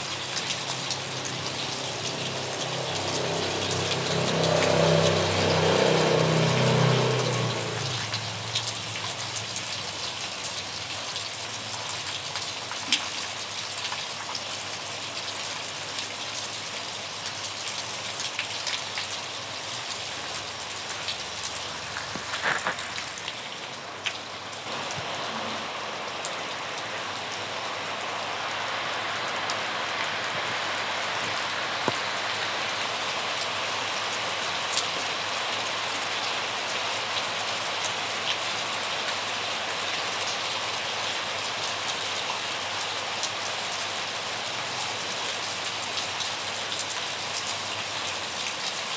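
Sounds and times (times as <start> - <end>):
steady rain hiss: 0.0 - 48.9
raindrop impacts: 0.2 - 10.6, 20.2 - 26.3.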